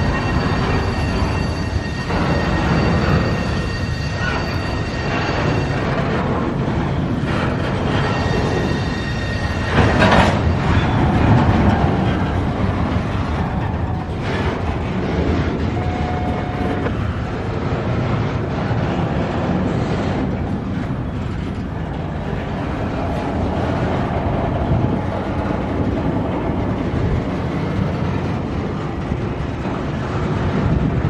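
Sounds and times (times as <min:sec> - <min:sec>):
train cars rumbling on rails: 0:00.0 - 0:31.0.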